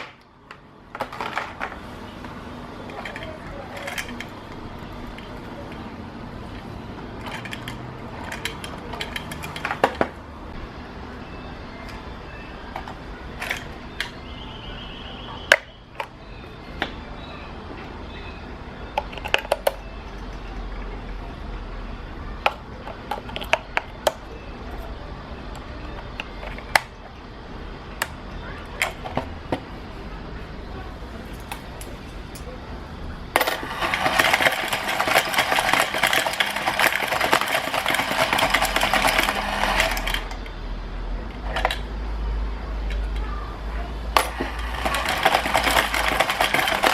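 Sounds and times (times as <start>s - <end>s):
coins clinking on plastic: 2.8s - 10.0s, 33.3s - 40.5s, 44.1s - 46.9s.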